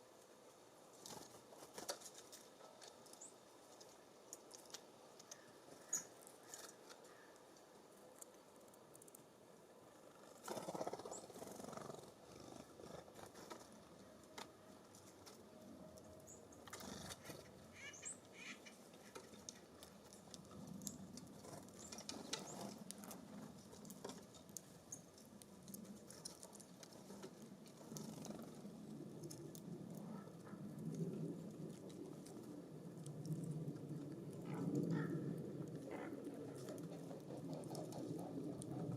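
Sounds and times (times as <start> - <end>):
birds pecking on feeder: 10.0 - 38.9
wind gusts: 15.5 - 38.9.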